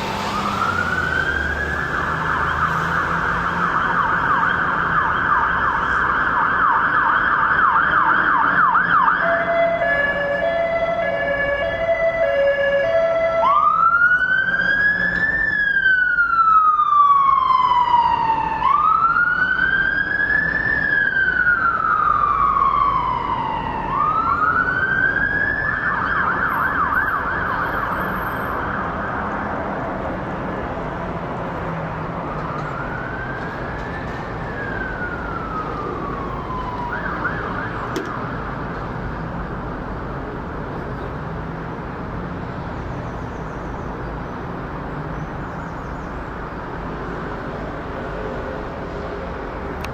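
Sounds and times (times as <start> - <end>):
emergency vehicle siren wailing: 0.0 - 30.0, 31.5 - 38.8.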